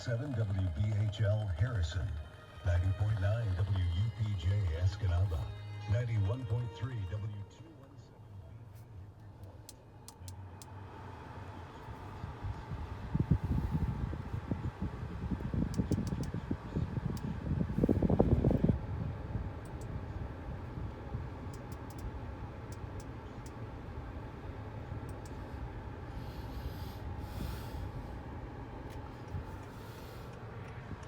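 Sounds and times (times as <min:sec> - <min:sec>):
low hum inside car cabin: 0:00.0 - 0:31.0
rumbling handling noise: 0:25.2 - 0:31.0.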